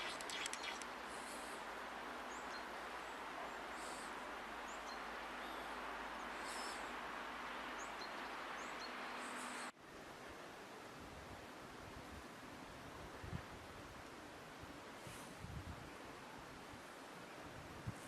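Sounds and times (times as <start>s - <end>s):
faint high bird chirps: 0.0s - 0.9s
outdoor background noise: 0.0s - 18.0s.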